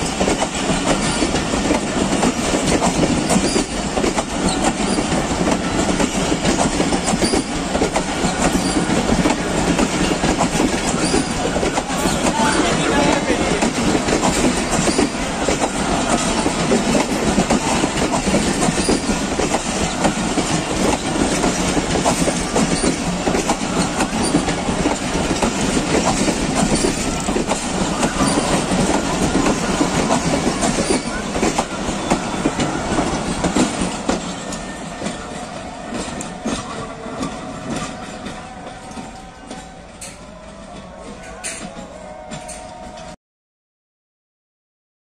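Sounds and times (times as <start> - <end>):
train wheels clattering over rail joints: 0.0 - 43.1.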